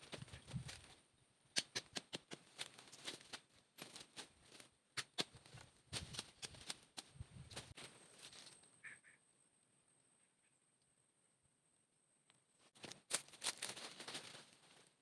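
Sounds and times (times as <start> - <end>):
sharp irregular clicks and knocks: 1.5 - 3.4.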